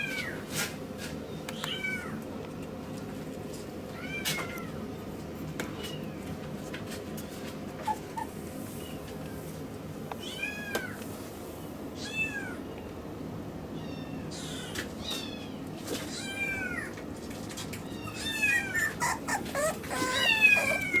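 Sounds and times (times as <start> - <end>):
puppy whining: 7.7 - 9.0, 17.7 - 21.0.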